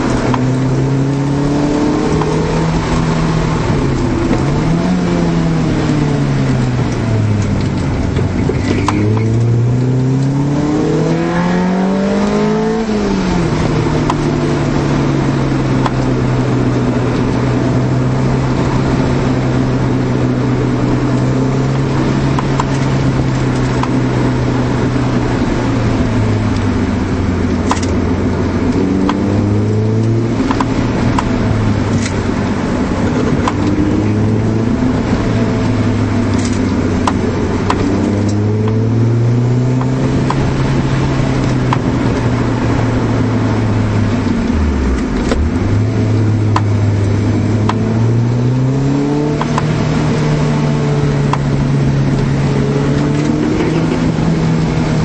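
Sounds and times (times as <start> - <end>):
car engine revving: 0.0 - 55.0
road noise: 0.0 - 55.0.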